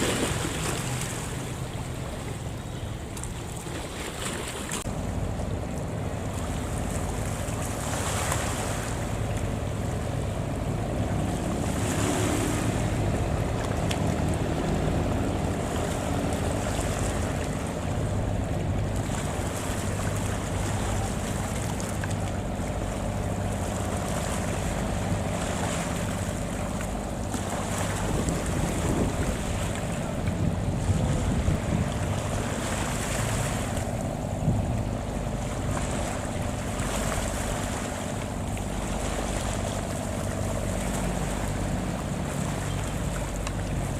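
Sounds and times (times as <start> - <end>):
boat engine running: 0.0 - 43.9
sea wash: 0.0 - 43.9
wind on the microphone: 27.5 - 37.0.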